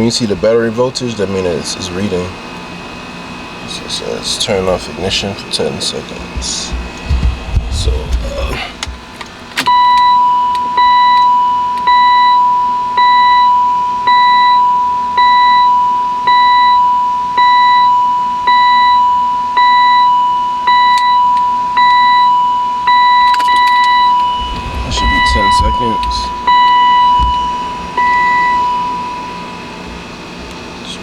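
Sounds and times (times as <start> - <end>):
car warning chime: 4.3 - 31.0.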